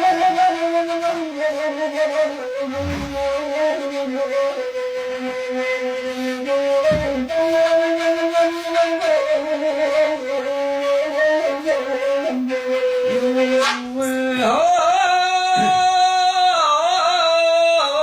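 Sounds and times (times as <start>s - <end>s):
reed flute melody: 0.0s - 14.5s
man singing: 14.0s - 18.0s.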